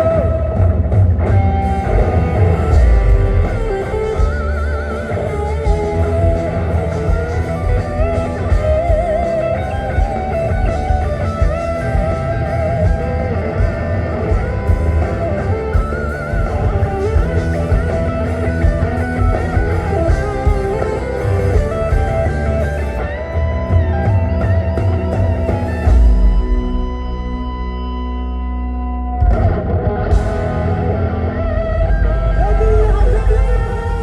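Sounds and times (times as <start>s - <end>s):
bass: 0.0s - 34.0s
drums: 0.0s - 34.0s
electric guitar lead with bent notes: 0.0s - 34.0s.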